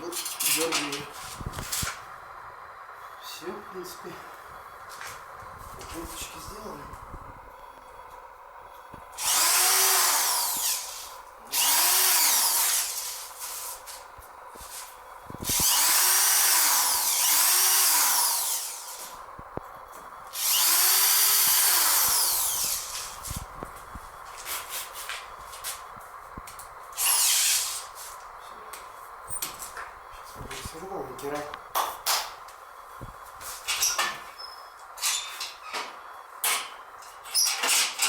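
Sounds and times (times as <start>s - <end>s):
electric drill drilling: 9.2s - 13.4s, 15.4s - 19.2s, 20.3s - 23.3s, 27.0s - 28.0s.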